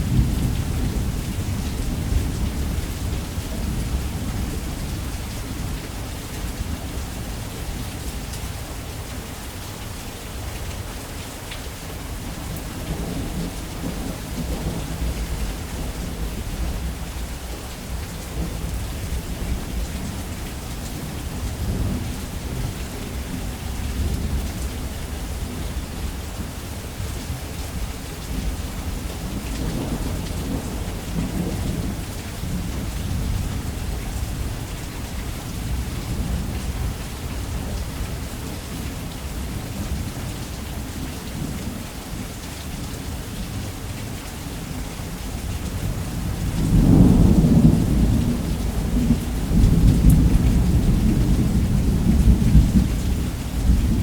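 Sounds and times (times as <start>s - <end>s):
low rolling thunder: 0.0s - 5.8s, 11.9s - 37.9s, 45.4s - 54.0s
heavy rain on a roof: 0.0s - 54.0s.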